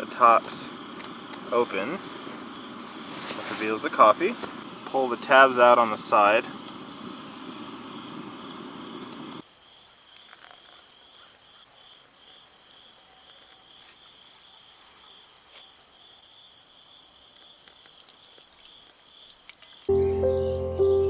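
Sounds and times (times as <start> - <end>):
insects chirping: 0.0 - 21.0.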